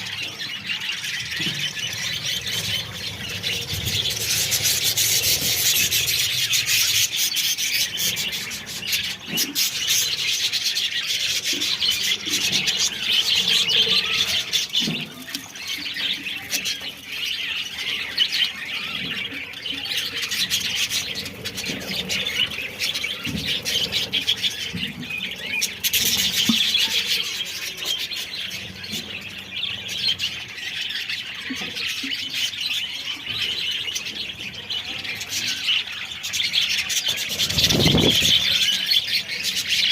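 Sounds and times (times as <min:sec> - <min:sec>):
budgerigars chattering: 0:32.9 - 0:39.9.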